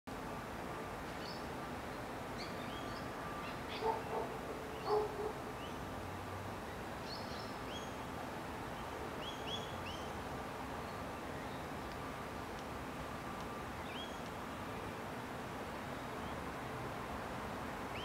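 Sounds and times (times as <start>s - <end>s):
steady outdoor hiss: 0.1s - 18.0s
birds chirping: 2.4s - 5.8s.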